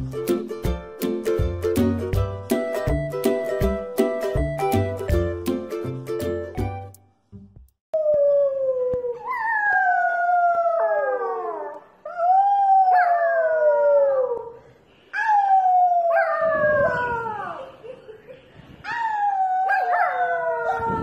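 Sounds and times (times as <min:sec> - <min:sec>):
small dog howling: 0:08.0 - 0:14.6, 0:15.2 - 0:17.6, 0:18.9 - 0:21.0.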